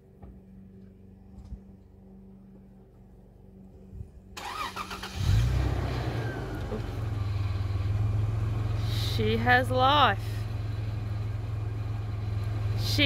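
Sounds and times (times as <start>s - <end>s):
car engine cranking and idling: 4.4s - 13.0s.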